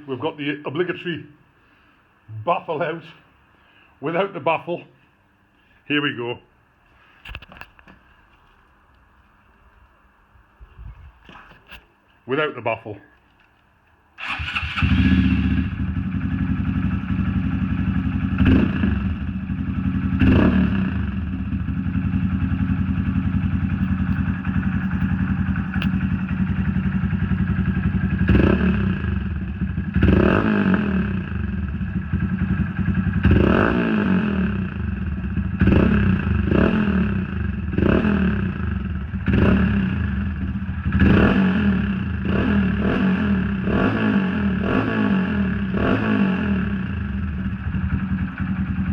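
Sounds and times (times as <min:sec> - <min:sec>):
motorcycle engine idling and revving: 0:14.2 - 0:48.9.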